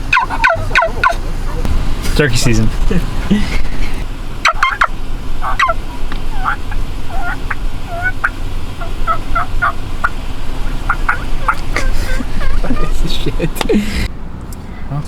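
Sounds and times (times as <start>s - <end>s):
turkey gobbling: 0.0s - 1.7s, 3.5s - 13.6s
steady low rumble: 0.0s - 15.0s.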